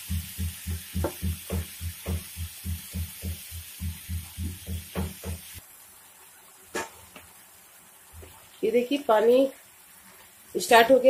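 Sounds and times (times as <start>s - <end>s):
prawns sizzling in a pan: 0.0s - 11.0s.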